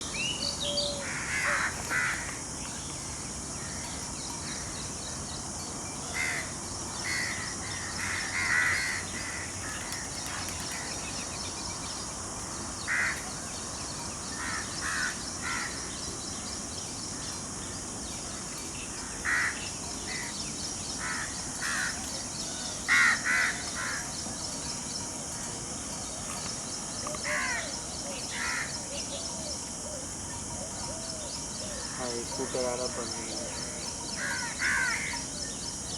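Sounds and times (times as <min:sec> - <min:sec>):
steady high-pitched hiss: 0:00.0 - 0:35.9
harsh cawing bird calls: 0:00.7 - 0:02.4, 0:06.1 - 0:11.0, 0:12.8 - 0:13.4, 0:14.3 - 0:15.9, 0:19.0 - 0:20.4, 0:21.0 - 0:22.0, 0:22.6 - 0:24.2, 0:27.2 - 0:28.8, 0:31.7 - 0:35.2.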